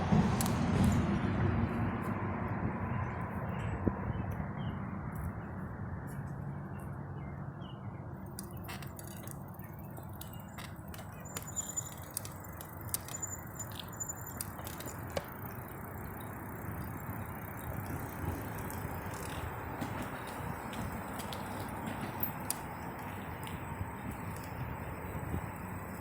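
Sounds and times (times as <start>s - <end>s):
road and wind rumble: 0.0s - 26.0s
bike clicks and rattles: 0.2s - 2.1s, 8.1s - 26.0s.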